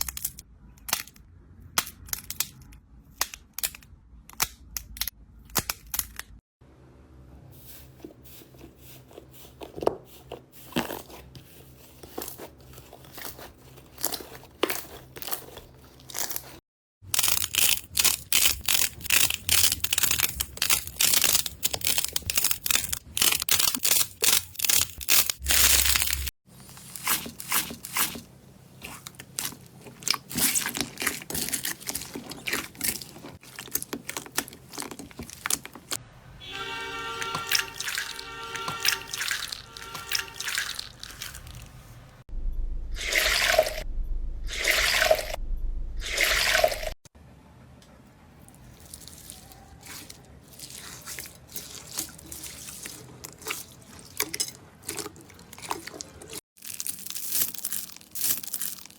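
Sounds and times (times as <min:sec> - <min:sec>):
slime squeezed crackling and popping: 0:28.8 - 0:35.9.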